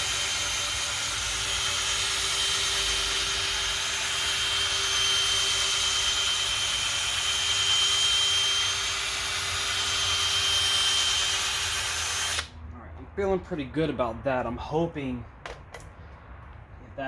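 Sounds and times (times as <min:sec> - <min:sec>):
electric drill whirring: 0:00.0 - 0:12.5.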